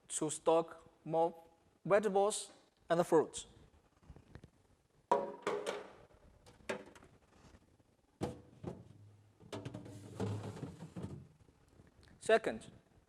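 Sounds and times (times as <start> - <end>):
plastic drawers knocking: 5.1 - 6.0, 8.2 - 11.4.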